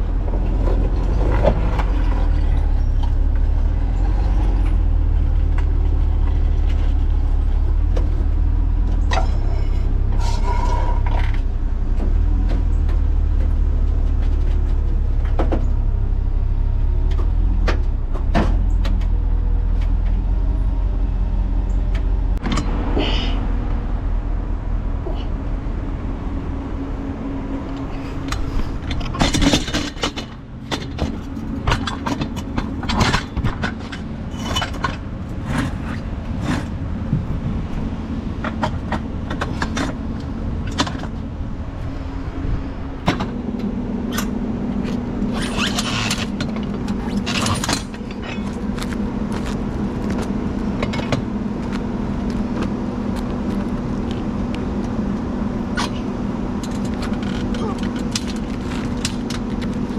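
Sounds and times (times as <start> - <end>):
truck engine humming: 0.0 - 59.9
metal clanks and scrapes: 9.0 - 11.5, 27.8 - 36.8, 44.1 - 50.2.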